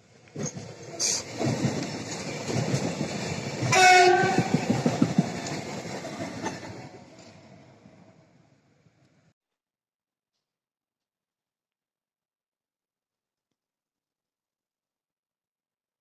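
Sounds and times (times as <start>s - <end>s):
train wheels rumbling and clattering: 0.0s - 8.4s
train horn blast: 3.7s - 4.6s.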